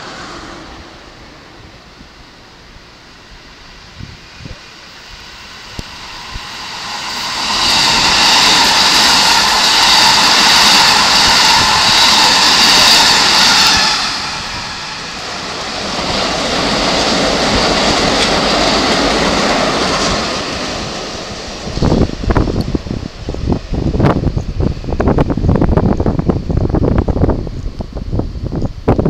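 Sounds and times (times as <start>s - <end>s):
electric train passing: 0.0s - 29.0s
high whine: 0.0s - 29.0s.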